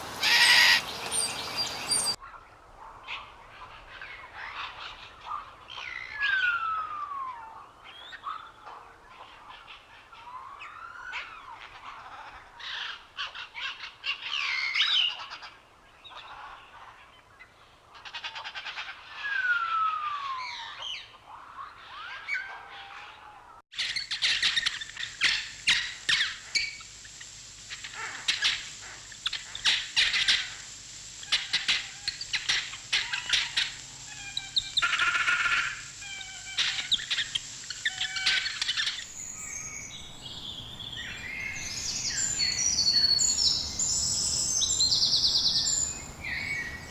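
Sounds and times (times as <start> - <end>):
birds chirping: 0.0 - 2.2, 38.8 - 46.9
high-pitched hiss: 0.0 - 2.2, 26.4 - 46.9
whistled descending bird notes: 0.0 - 2.2, 39.1 - 46.9.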